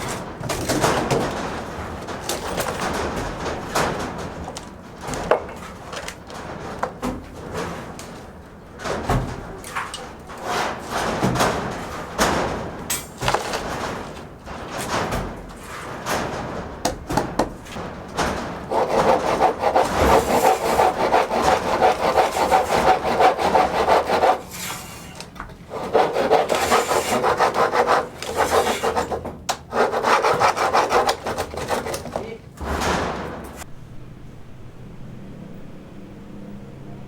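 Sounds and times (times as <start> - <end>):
knocks: 8.8 - 24.4, 25.4 - 33.6
rasping scraping tool: 18.7 - 32.4.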